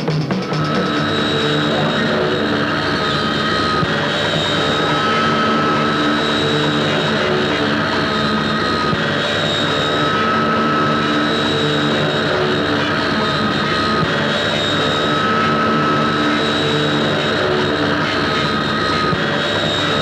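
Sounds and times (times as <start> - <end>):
propeller aircraft engine droning: 0.0 - 20.0.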